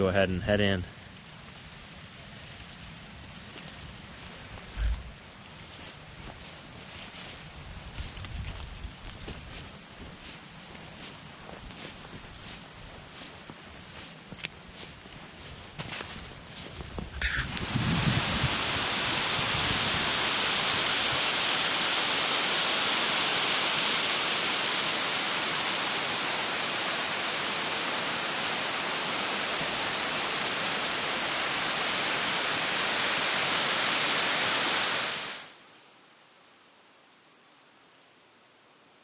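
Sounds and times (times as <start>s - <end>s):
strong wind blowing: 16.9s - 21.2s.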